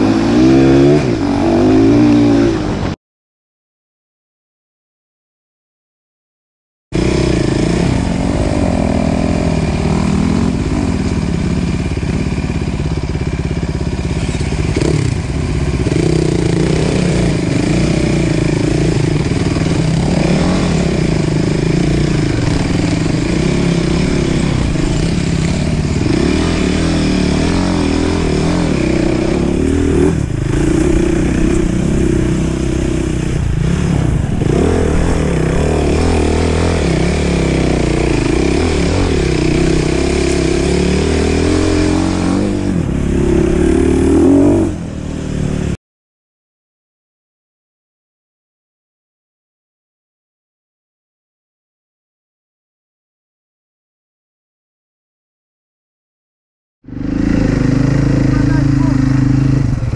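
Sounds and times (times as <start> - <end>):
motorcycle engine revving: 0.0 - 3.0, 7.0 - 45.8, 56.8 - 59.9.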